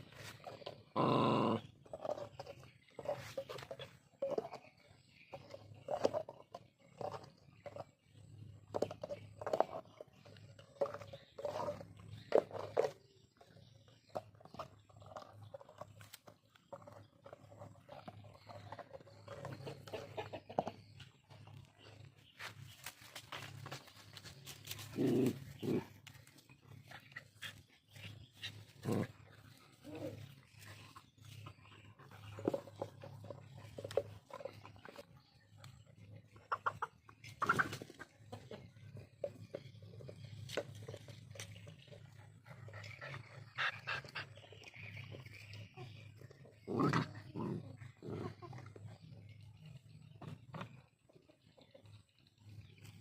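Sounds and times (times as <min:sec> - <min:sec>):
dog snarling: 0:00.9 - 0:02.4, 0:24.9 - 0:26.0, 0:46.0 - 0:48.8
dogs panting: 0:01.9 - 0:53.0.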